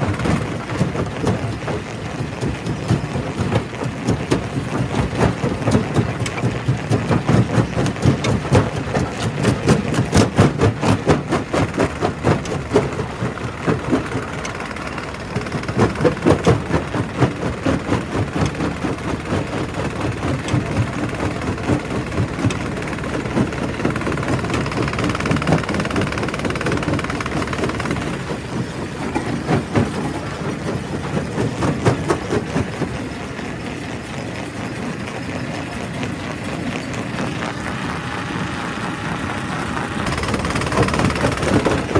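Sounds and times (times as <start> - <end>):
rocks clattering in crusher: 0.0 - 33.4, 40.0 - 41.9
crusher machine droning: 0.0 - 41.9.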